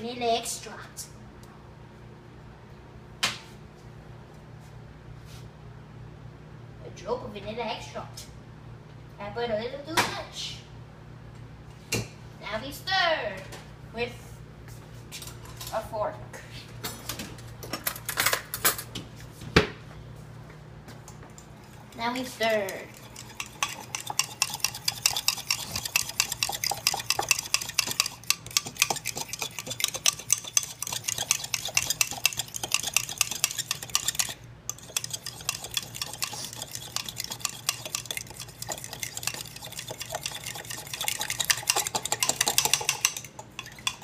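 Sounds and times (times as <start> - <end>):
fork scraping ceramic mug: 22.0 - 44.0.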